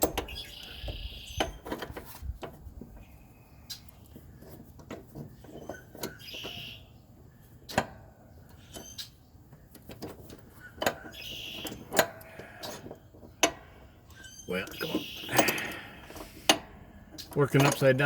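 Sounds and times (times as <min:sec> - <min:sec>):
metal tools clinking: 0:17.2 - 0:18.0.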